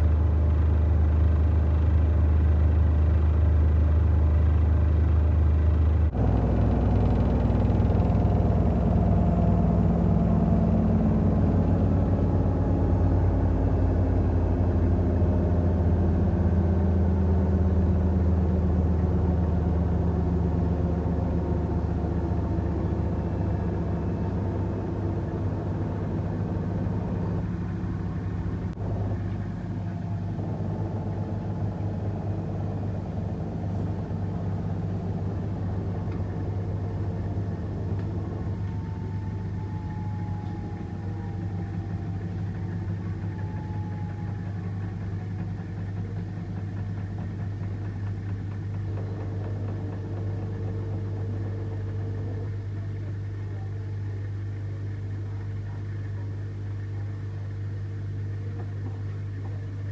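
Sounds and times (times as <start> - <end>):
washing machine hum: 5.7 - 59.9.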